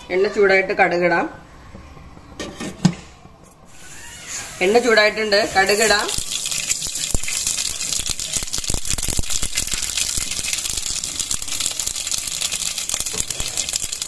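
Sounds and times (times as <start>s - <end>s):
oil sizzling: 5.3s - 14.0s
seeds crackling in hot oil: 5.6s - 14.0s.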